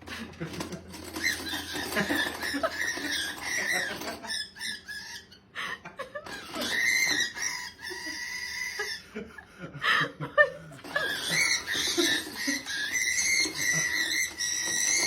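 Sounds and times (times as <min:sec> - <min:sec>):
pet animal squealing: 0:01.2 - 0:05.5, 0:06.3 - 0:09.1, 0:10.8 - 0:15.0.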